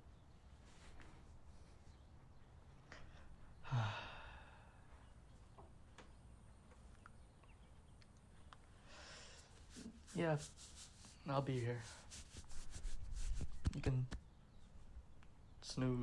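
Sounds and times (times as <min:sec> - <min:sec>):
man sighing: 0:03.6 - 0:04.8.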